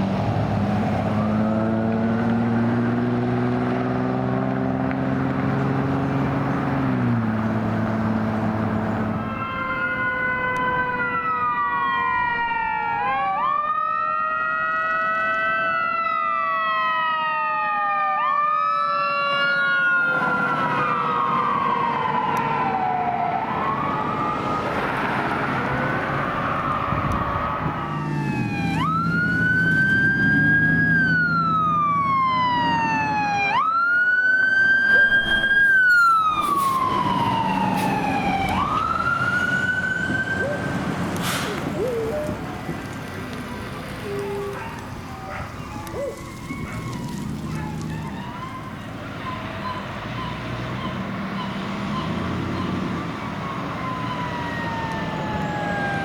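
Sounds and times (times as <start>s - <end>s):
heavy vehicle engine rumble: 0.0s - 9.9s, 35.0s - 56.0s
emergency sirens wailing: 0.0s - 56.0s.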